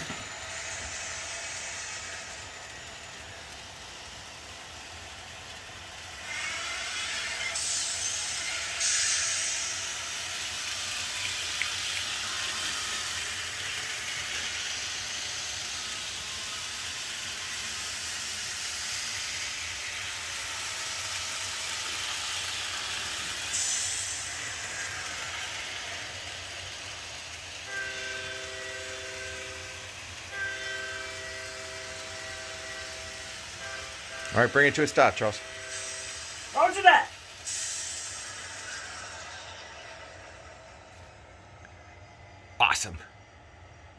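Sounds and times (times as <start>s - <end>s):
locomotive running with hiss: 0.0s - 43.9s
locomotive chime whistle: 27.5s - 37.8s.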